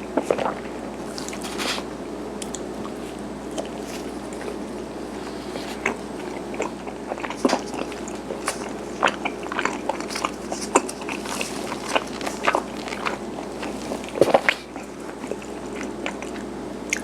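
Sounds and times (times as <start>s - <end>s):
steady low hum: 0.0s - 17.0s
chewing mouth clicks: 0.2s - 4.6s, 5.5s - 17.0s.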